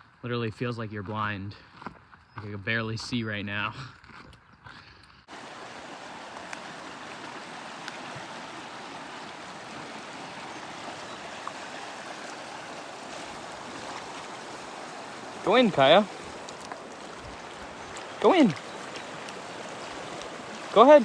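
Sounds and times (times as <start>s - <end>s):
river water rushing: 5.3s - 21.0s.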